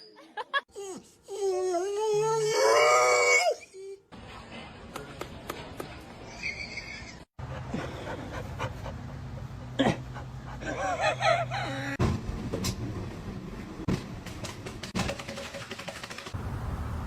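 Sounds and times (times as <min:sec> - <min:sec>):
dog panting: 0:07.4 - 0:10.8.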